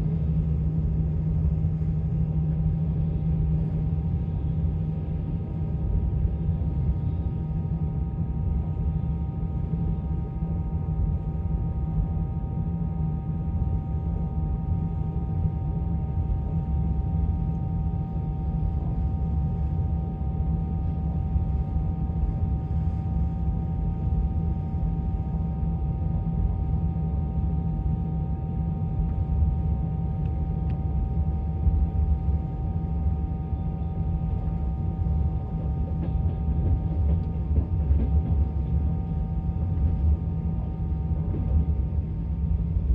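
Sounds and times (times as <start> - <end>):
constant high hum: 0.0 - 42.9
train running gear rumble: 31.3 - 42.9.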